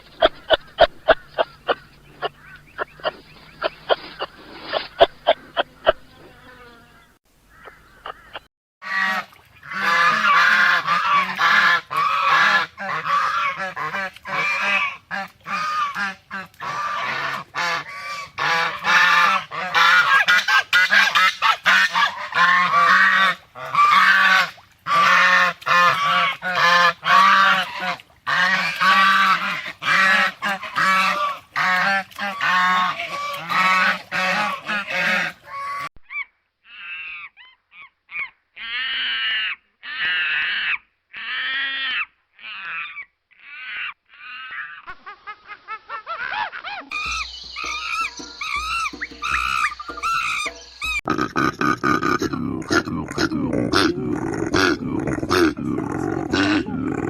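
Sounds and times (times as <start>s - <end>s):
animals honking in chorus: 7.6s - 35.9s.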